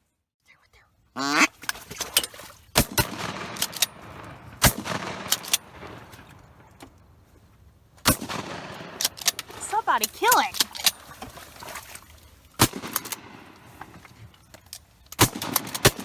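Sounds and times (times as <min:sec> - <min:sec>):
duck quacking: 0:01.2 - 0:01.6
shotgun shots: 0:02.8 - 0:06.2, 0:08.0 - 0:09.5, 0:12.6 - 0:13.6, 0:15.2 - 0:16.0.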